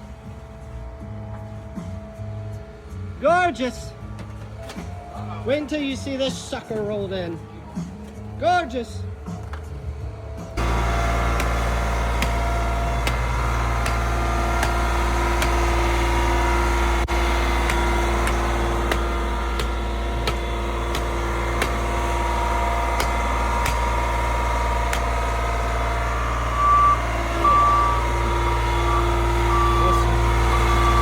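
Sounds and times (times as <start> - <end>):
paving equipment engine running: 0.0 - 31.0
backup alarm beeping: 10.6 - 31.0.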